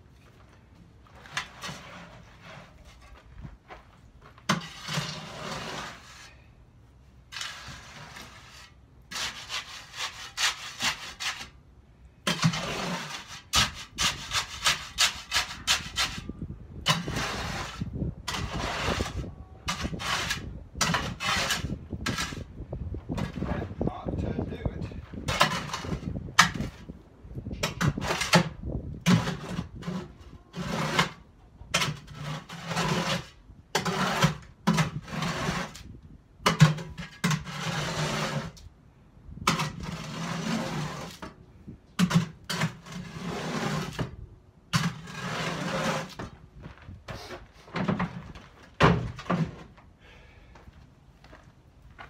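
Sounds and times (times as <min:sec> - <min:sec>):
knocks and scrapes of hand work: 0:00.2 - 0:06.4, 0:12.2 - 0:22.5, 0:25.2 - 0:26.9, 0:27.6 - 0:38.6, 0:39.4 - 0:41.4, 0:42.0 - 0:49.8.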